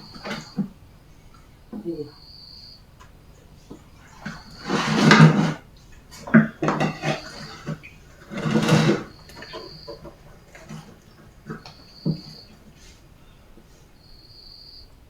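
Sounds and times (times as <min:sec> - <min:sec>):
dishes and cutlery clattering: 0:04.0 - 0:12.5.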